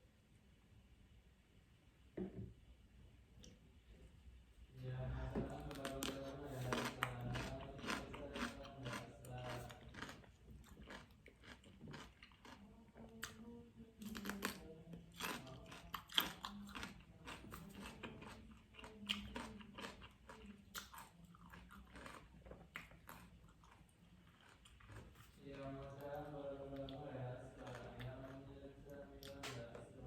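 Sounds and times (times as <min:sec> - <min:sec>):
cucumber being bitten and chewed: 0:05.6 - 0:12.6, 0:14.0 - 0:25.4, 0:27.6 - 0:28.4.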